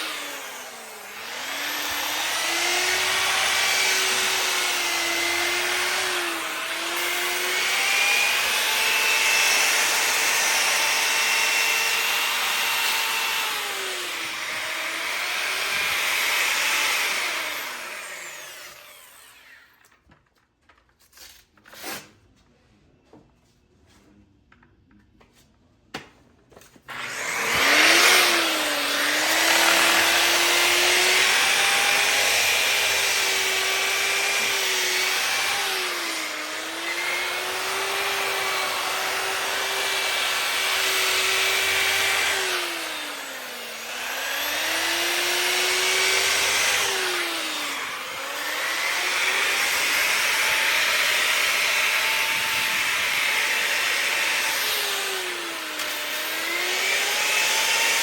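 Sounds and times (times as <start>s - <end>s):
grinder sanding iron skillet: 26.9s - 38.4s.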